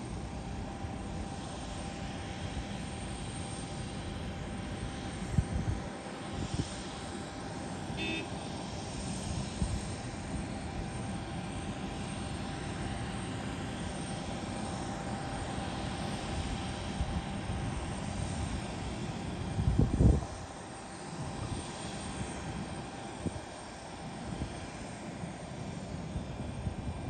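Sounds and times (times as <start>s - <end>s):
airplane engines running: 0.0s - 27.0s
wind buffeting microphone: 5.2s - 7.0s, 19.3s - 20.5s.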